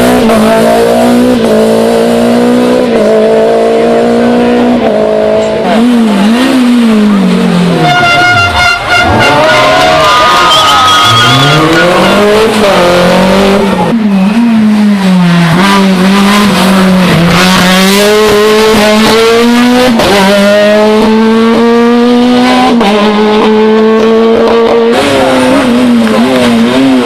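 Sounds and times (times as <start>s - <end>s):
rally car engine revving: 0.0s - 27.0s
tyre squeal: 8.2s - 12.7s.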